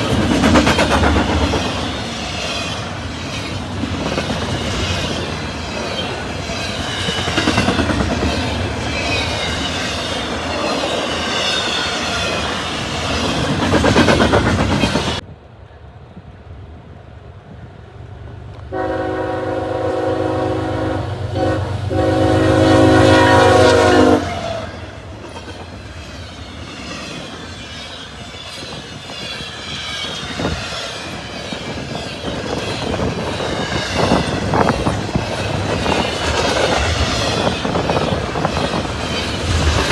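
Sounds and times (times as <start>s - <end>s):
train wheels clattering and squealing: 0.0s - 15.2s, 24.3s - 39.9s
low rumble of approaching train: 0.0s - 39.9s
locomotive air horn: 18.7s - 24.8s.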